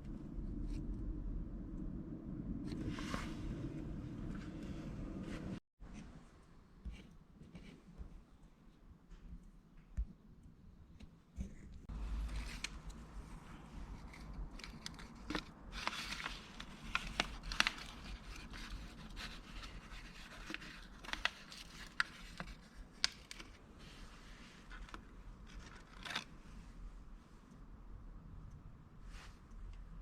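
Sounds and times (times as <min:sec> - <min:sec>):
low steady hum: 0:00.0 - 0:30.0
objects being handled: 0:11.0 - 0:26.5.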